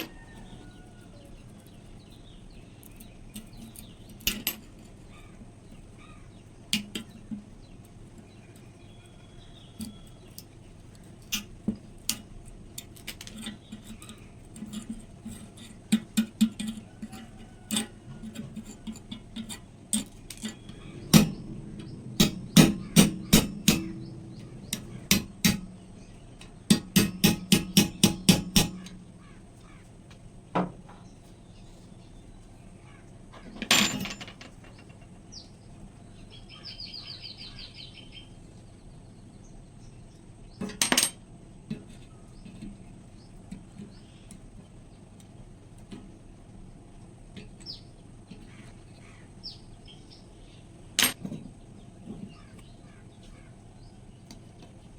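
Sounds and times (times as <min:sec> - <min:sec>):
hammer striking metal: 0:19.5 - 0:29.1.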